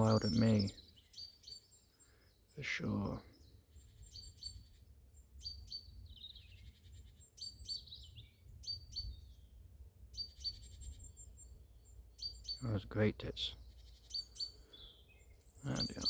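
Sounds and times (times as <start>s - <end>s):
great tits alarm calls: 0.0s - 4.8s, 5.4s - 9.3s, 10.1s - 16.0s.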